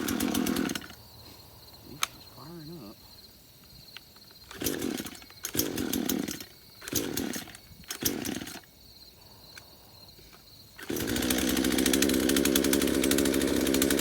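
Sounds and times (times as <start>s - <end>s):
chainsaw firing in short bursts: 0.0s - 1.0s, 4.5s - 8.7s, 10.8s - 14.0s
chainsaw pull-start: 0.0s - 1.0s, 4.4s - 8.7s, 10.8s - 14.0s.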